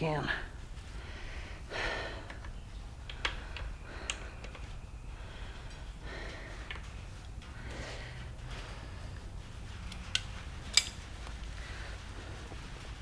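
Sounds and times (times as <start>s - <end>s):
low steady hum: 0.0s - 13.0s
hand tools clicking and tapping: 2.2s - 4.8s, 9.9s - 11.1s.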